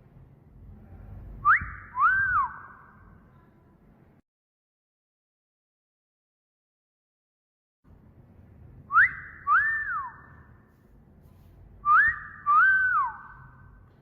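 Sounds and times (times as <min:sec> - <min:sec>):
wolf whistles: 0:01.4 - 0:02.9, 0:08.9 - 0:10.3, 0:11.8 - 0:13.6.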